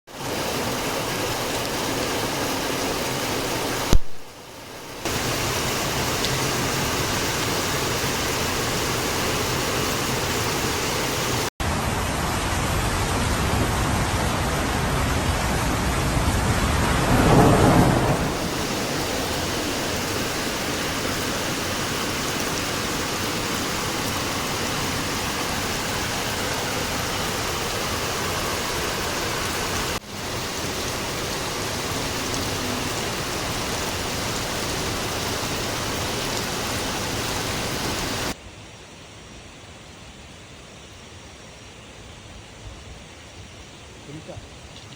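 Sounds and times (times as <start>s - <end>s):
rain falling: 0.1s - 44.9s
thunder rumbling: 11.8s - 21.6s.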